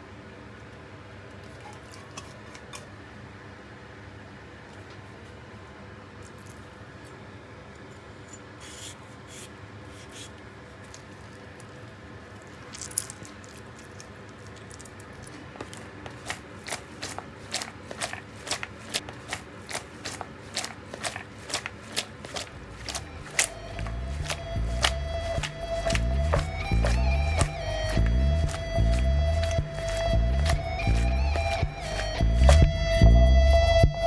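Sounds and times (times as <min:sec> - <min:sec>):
light scraping: 0:15.3 - 0:32.8
steady low hum: 0:15.3 - 0:33.5.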